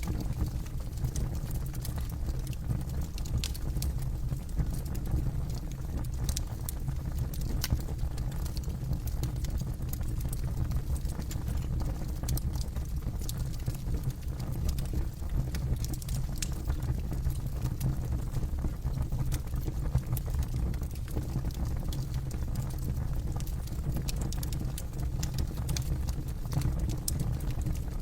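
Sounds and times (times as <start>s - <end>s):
low rumble of flames: 0.0s - 28.0s
burning wood crackling: 15.5s - 17.0s, 22.4s - 28.0s.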